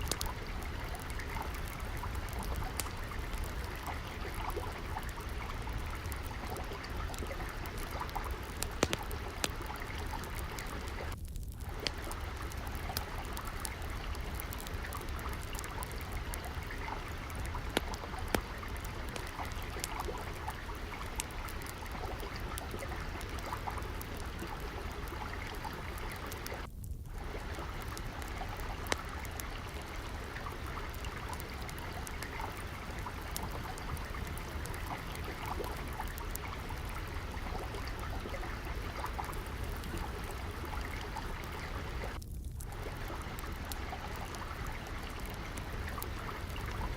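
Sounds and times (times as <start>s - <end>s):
trickling water: 0.0s - 46.9s
wood fire crackling: 0.0s - 46.9s.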